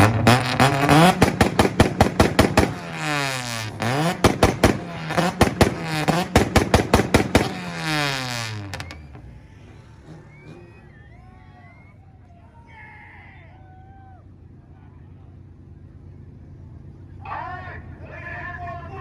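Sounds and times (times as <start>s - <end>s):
car engine launch limiter pops: 0.0s - 11.1s
engine revs falling: 0.0s - 12.3s.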